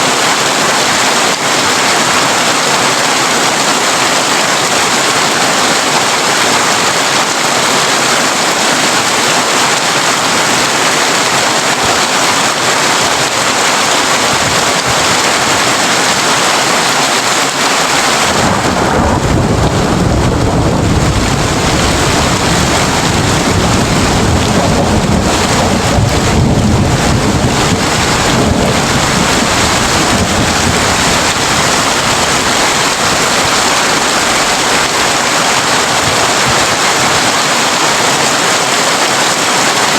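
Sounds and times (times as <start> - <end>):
heavy rain on a tin roof: 0.0 - 39.9
thunder rumbling: 18.0 - 36.8.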